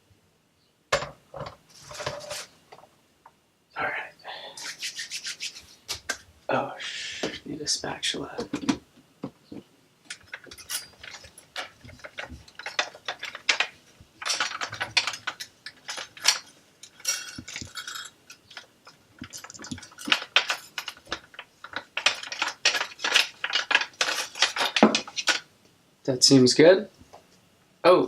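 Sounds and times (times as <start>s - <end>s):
kitchen utensils clattering: 10.1s - 25.4s.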